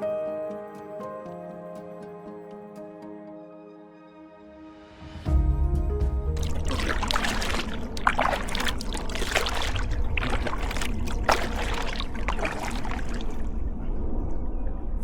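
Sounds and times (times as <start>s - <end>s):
kayak paddle splashes: 6.4s - 13.5s.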